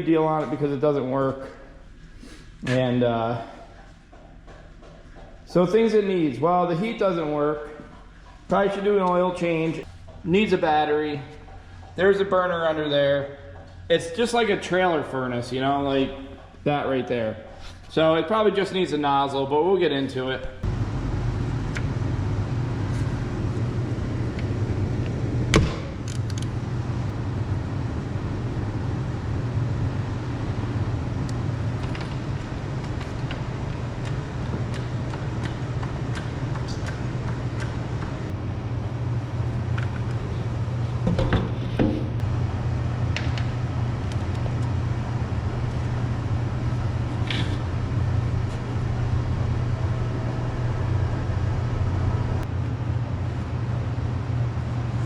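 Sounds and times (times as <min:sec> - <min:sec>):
sharp knocks and clicks: 0:04.1 - 0:05.6, 0:10.0 - 0:10.4
low engine-like drone: 0:20.6 - 0:55.0.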